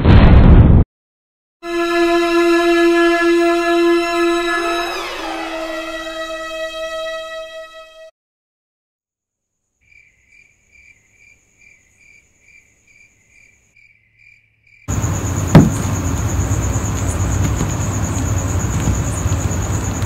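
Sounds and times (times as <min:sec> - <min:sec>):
heavy thud with falling boom: 0:00.0 - 0:00.8, 0:15.5 - 0:16.0
crickets chirping: 0:09.7 - 0:20.0.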